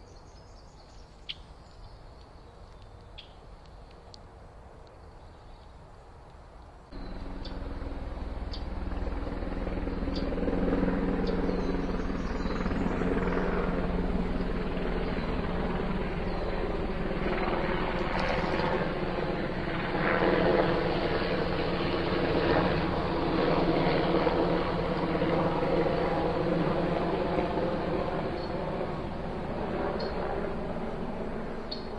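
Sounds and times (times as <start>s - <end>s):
loud engine drone: 6.9s - 19.7s.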